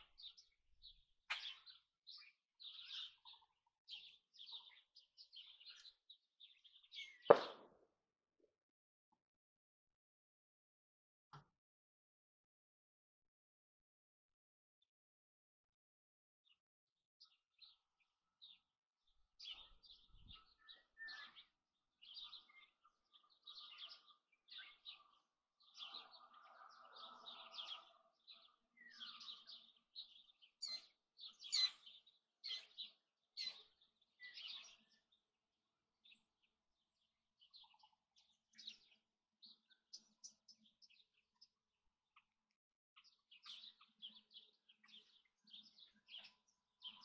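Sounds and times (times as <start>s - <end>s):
small birds chirping: 0.0s - 7.7s, 17.2s - 47.0s.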